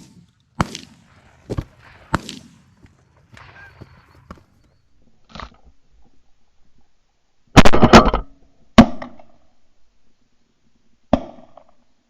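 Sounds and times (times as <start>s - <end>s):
shotgun shots: 0.0s - 4.8s.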